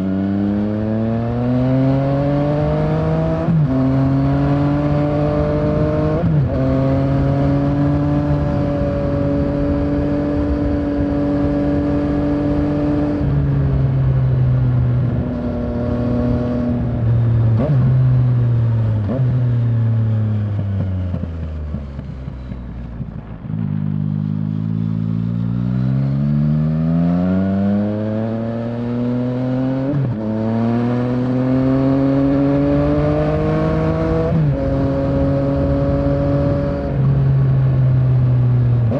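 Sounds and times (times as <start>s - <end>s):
motorcycle engine revving: 0.0s - 38.9s
wind rush: 5.3s - 17.7s, 32.0s - 38.0s.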